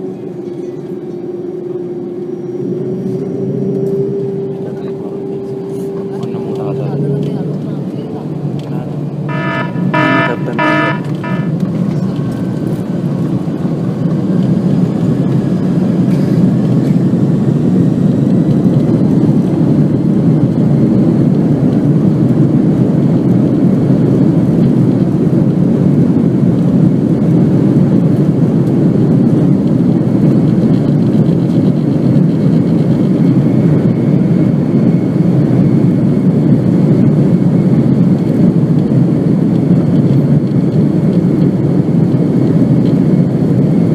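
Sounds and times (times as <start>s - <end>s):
jet engines roaring at takeoff: 0.0s - 43.9s
short tone: 9.3s - 12.1s.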